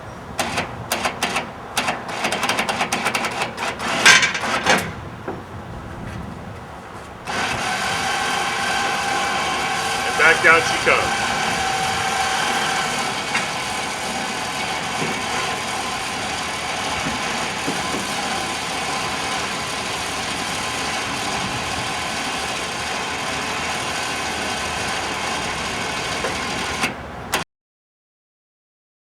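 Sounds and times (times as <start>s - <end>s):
motor running: 7.2s - 27.0s.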